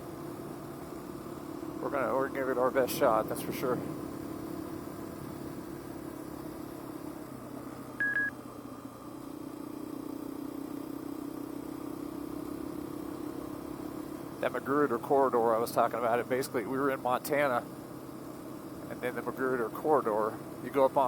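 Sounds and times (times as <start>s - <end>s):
motorcycle engine running: 0.0s - 21.0s
short electronic beep: 8.0s - 8.3s.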